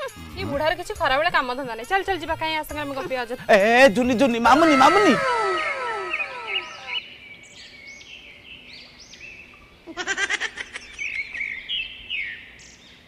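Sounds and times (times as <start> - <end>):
birds chirping: 2.7 - 9.9.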